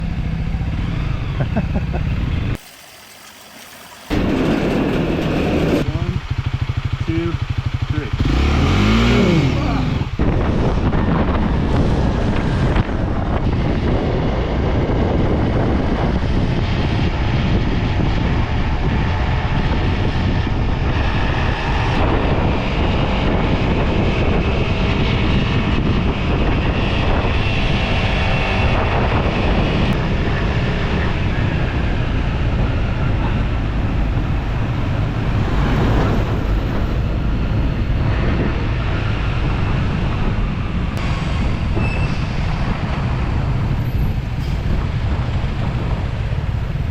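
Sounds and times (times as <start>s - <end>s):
motorcycle engine running: 4.1s - 15.6s
wind rushing over microphone: 4.1s - 46.9s.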